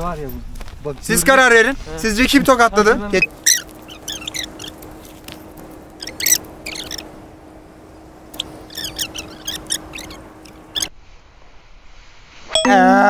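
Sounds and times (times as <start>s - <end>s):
faint low hum: 0.0s - 12.0s
small birds chirping: 2.6s - 10.9s.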